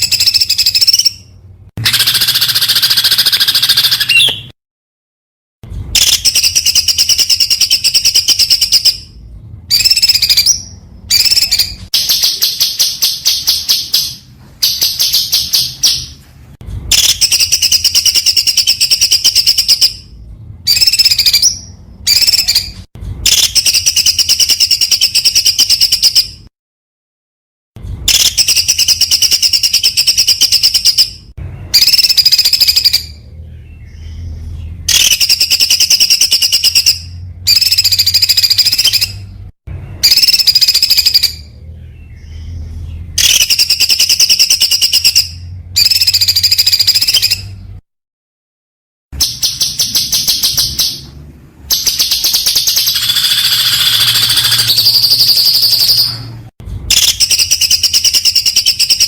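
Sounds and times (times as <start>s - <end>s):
songbird singing rapid notes: 0.0s - 4.5s, 51.7s - 56.2s.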